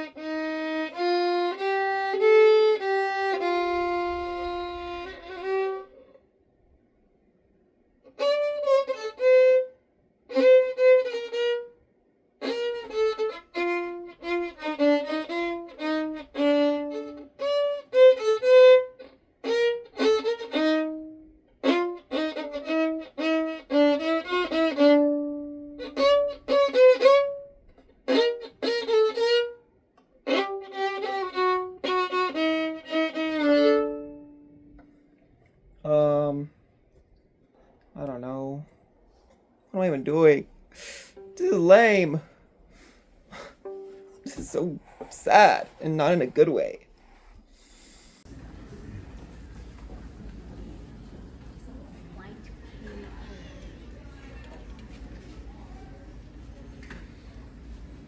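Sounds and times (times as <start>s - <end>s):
solo violin melody: 0.0s - 6.3s, 8.0s - 35.0s, 40.8s - 42.3s, 43.4s - 46.2s.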